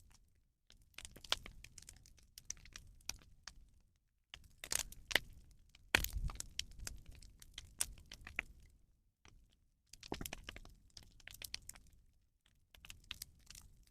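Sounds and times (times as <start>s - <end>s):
bonfire crackling and popping: 1.0s - 3.6s, 4.4s - 8.7s, 10.0s - 11.9s, 12.8s - 13.8s.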